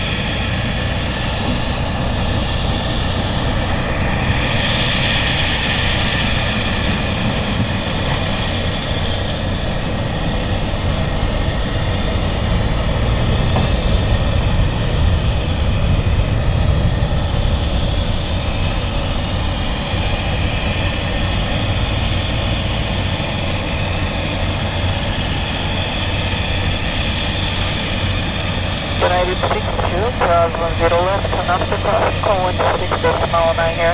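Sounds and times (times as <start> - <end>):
jet engines roaring: 0.0 - 33.9.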